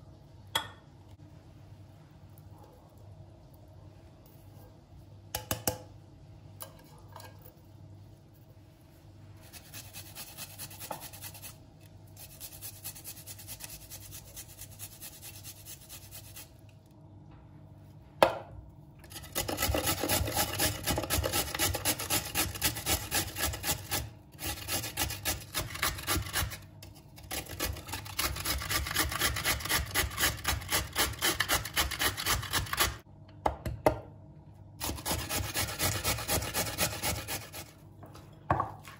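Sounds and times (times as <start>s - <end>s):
rasping scraping strokes: 34.8s - 37.7s.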